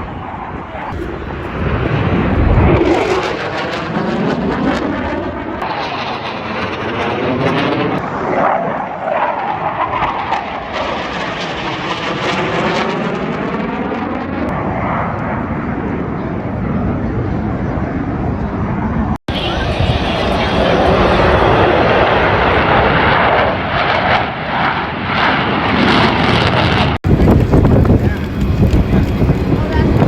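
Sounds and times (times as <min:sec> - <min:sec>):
jets flying past: 0:00.0 - 0:30.0.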